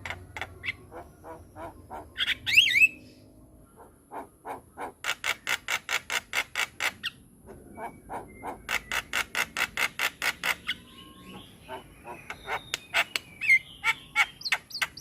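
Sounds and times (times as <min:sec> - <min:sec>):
bird sharp repeated notes: 0:07.8 - 0:15.0.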